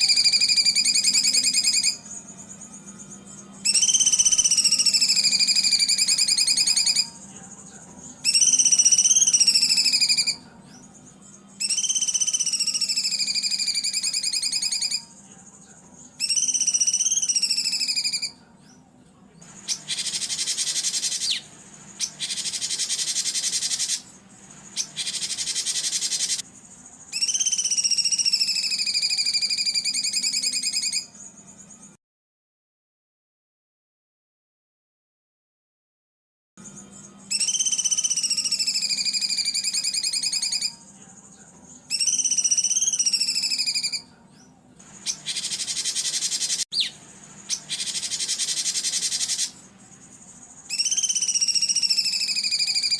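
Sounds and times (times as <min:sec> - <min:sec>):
songbird trilling: 0:00.0 - 0:18.4, 0:19.4 - 0:31.8, 0:36.7 - 0:44.1, 0:44.9 - 0:52.9
buzzy bird phrases: 0:00.0 - 0:32.0, 0:36.6 - 0:52.9.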